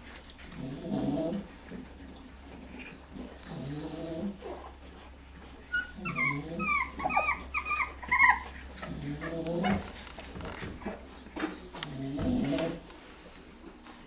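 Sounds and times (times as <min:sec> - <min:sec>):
dog snoring: 0:00.5 - 0:01.8, 0:03.2 - 0:04.8, 0:05.8 - 0:13.5
dog whimpering: 0:05.5 - 0:11.2.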